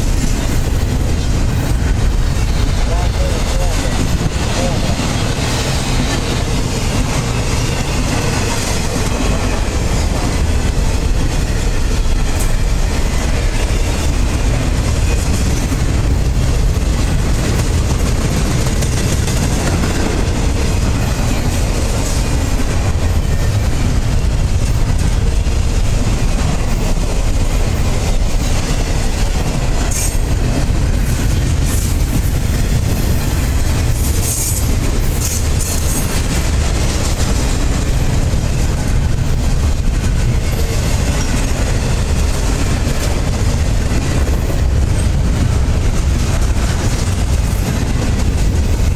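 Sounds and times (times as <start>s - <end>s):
steel wheels on rails: 0.0s - 48.9s.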